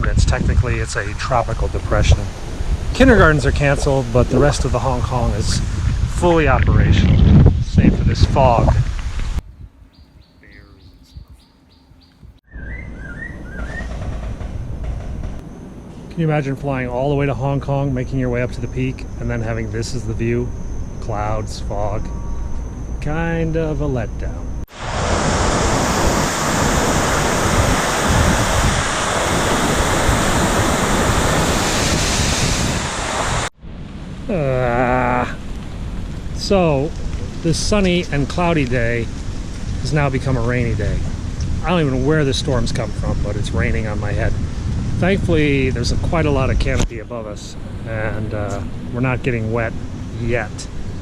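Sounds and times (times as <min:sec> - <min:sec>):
wind and rain: 0:00.0 - 0:09.9, 0:24.6 - 0:51.0
wind gusts buffeting microphone: 0:00.0 - 0:11.4, 0:24.7 - 0:33.5, 0:34.1 - 0:51.0
birds chirping: 0:09.4 - 0:16.4
bird warbling: 0:09.5 - 0:14.2.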